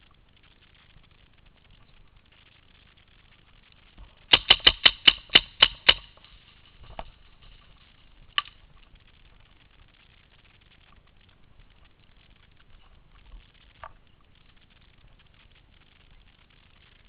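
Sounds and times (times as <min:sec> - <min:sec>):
paintball marker firing: 0:04.3 - 0:06.3.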